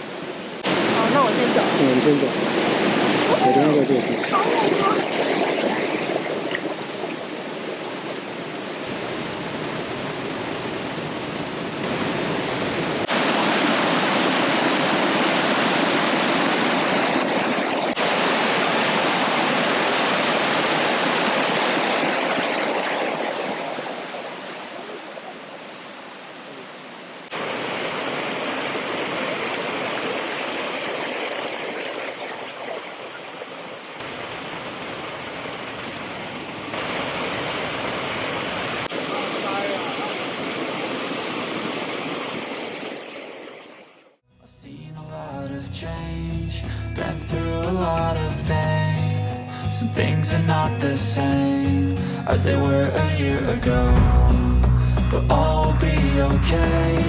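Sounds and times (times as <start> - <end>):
stream rushing over rocks: 0.0 - 44.2.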